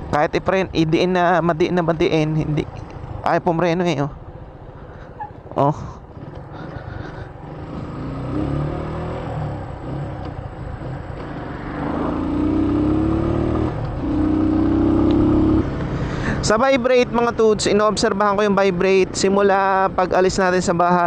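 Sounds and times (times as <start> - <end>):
motorcycle engine accelerating: 4.5 - 16.5.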